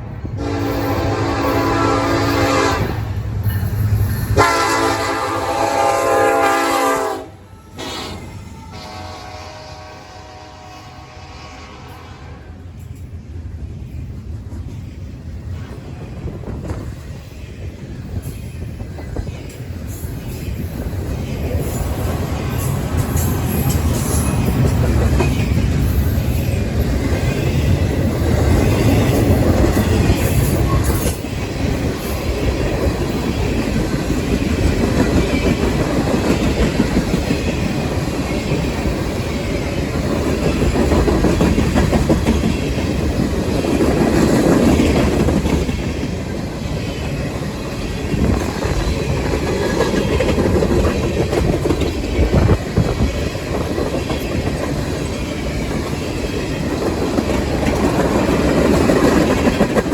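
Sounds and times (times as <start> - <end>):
train rumbling past: 0.0 - 59.9
wheels clicking over rail joints: 39.8 - 59.9.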